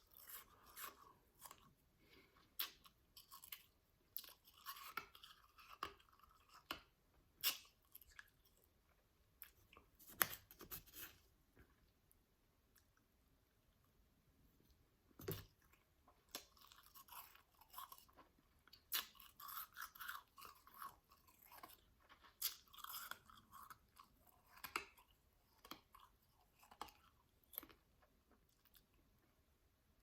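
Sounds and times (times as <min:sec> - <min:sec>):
chewing shaved ice: 0:15.4 - 0:29.0.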